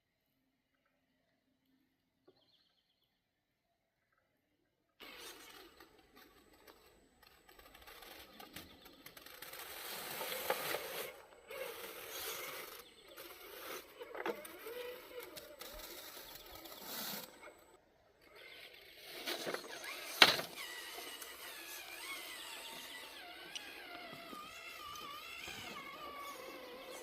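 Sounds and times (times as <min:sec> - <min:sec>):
electric motor whining: 0:18.3 - 0:27.0.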